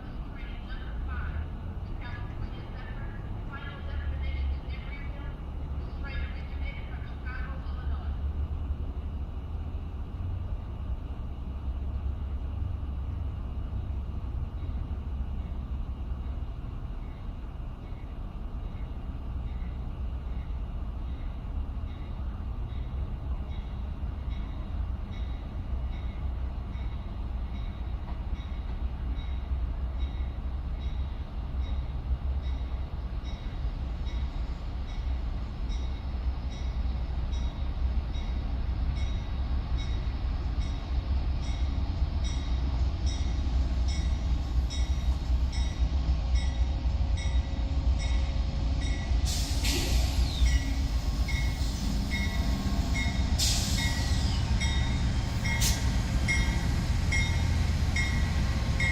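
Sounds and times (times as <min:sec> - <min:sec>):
train rumbling by: 0:00.0 - 0:58.9
short hissing or squealing bursts: 0:49.3 - 0:52.4.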